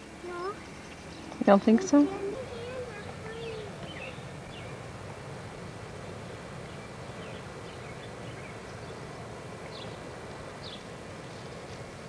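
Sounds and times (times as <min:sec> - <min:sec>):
low outdoor background hum: 0:00.0 - 0:12.0
small birds chirping: 0:00.2 - 0:04.9, 0:06.6 - 0:10.0.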